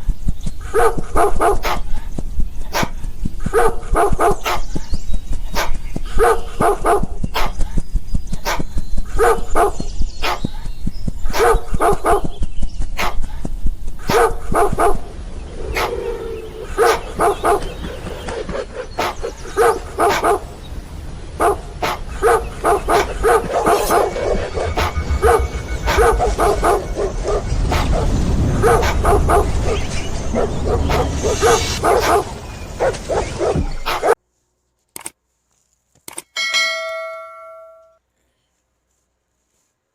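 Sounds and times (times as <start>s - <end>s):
dog barking: 0.7s - 4.8s, 5.5s - 7.8s, 8.4s - 10.7s, 11.3s - 12.4s, 13.0s - 15.1s, 15.7s - 20.5s, 21.4s - 34.2s.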